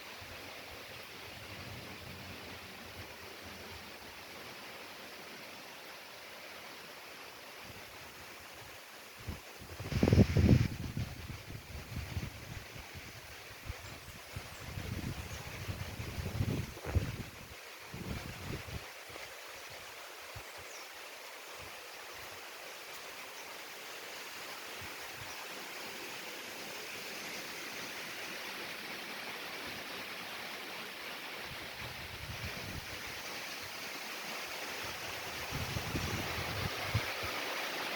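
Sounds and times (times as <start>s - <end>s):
wind blowing: 7.7s - 19.0s, 31.4s - 37.8s
wind buffeting microphone: 9.2s - 18.9s, 35.3s - 37.3s.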